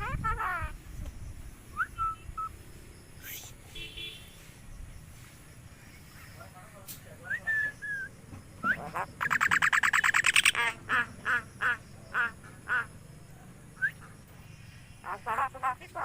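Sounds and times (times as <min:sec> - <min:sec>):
myna bird calling: 0:07.3 - 0:13.1, 0:13.8 - 0:16.0.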